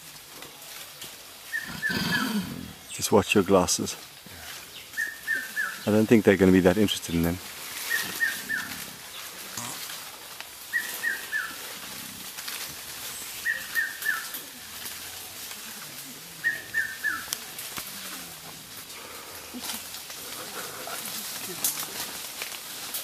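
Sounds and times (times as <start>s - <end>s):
faint rustling: 0.0s - 23.0s
bird calling falling notes: 7.8s - 8.8s, 10.7s - 11.6s, 13.2s - 14.4s, 16.4s - 17.4s.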